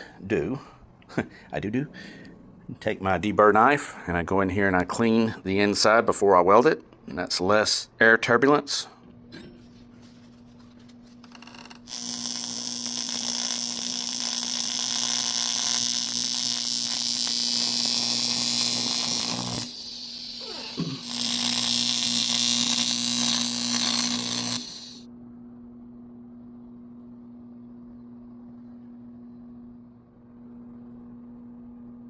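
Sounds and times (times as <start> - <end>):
welding arc hissing and humming: 11.2 - 25.1.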